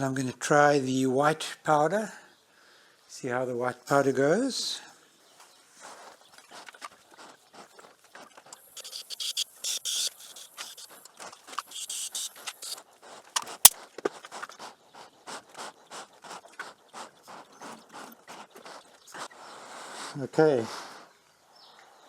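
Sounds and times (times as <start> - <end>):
powder spray gun hissing bursts: 8.6 - 12.8.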